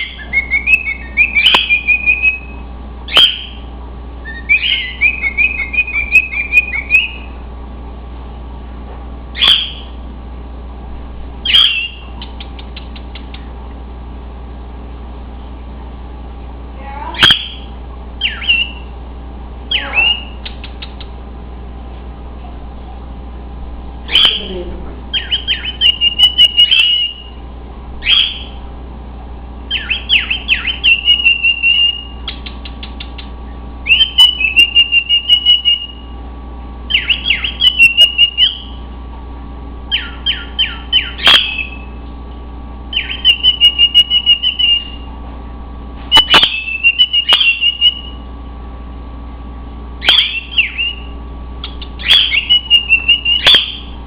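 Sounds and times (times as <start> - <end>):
cockatiel whistling: 0.0 - 3.6, 4.2 - 7.3, 9.4 - 9.9, 11.4 - 12.2, 17.2 - 18.9, 19.7 - 21.0, 24.1 - 24.4, 25.1 - 27.4, 28.0 - 28.6, 29.7 - 32.4, 33.8 - 36.0, 36.9 - 38.8, 39.9 - 41.9, 42.9 - 45.1, 46.1 - 48.2, 50.0 - 54.0.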